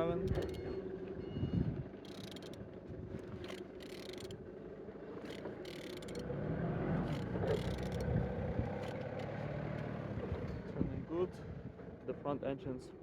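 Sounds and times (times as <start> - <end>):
light engine clicks: 0.2 - 0.6, 2.1 - 2.6, 3.4 - 4.4, 5.2 - 6.2, 7.1 - 8.2.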